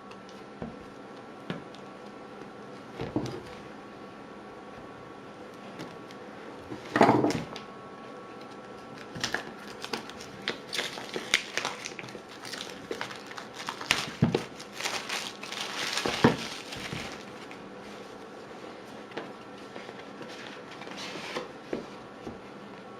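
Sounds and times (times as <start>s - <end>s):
packaging crinkling: 8.8s - 17.6s.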